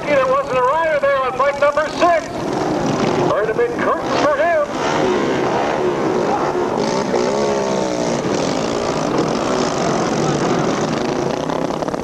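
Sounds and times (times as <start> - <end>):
motorcycle engines running: 0.0 - 12.0
motorcycle engine revving: 0.8 - 12.0.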